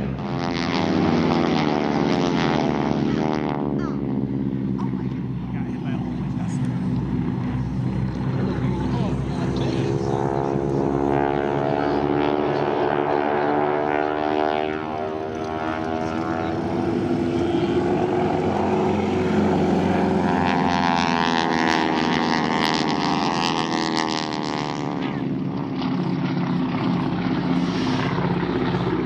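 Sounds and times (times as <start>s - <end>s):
propeller airplane engine droning: 0.0s - 29.0s.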